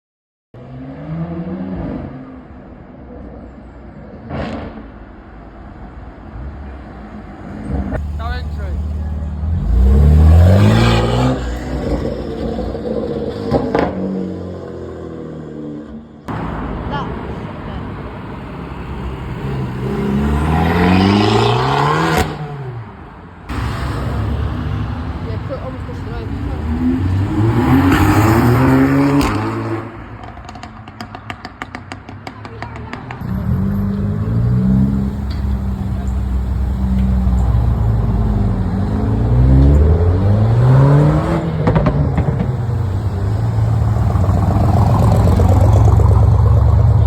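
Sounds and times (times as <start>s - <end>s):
car engine revving: 7.6s - 31.9s, 32.8s - 47.0s
steady engine rumble: 41.7s - 47.0s.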